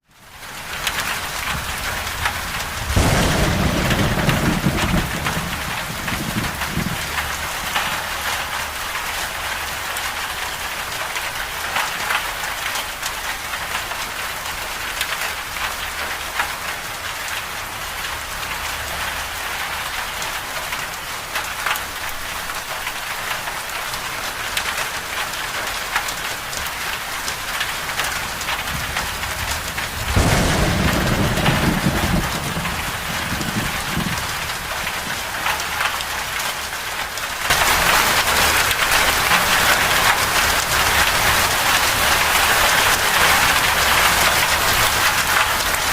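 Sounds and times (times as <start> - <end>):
rain on a hard surface: 0.0 - 45.9
thunder rumbling: 1.1 - 9.4, 27.5 - 36.8.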